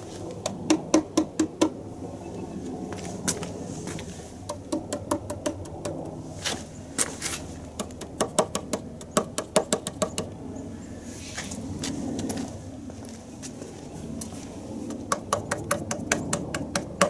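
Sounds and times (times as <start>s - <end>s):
knocks and clicks of hand tools: 4.5s - 6.0s, 7.8s - 10.3s, 14.9s - 17.0s.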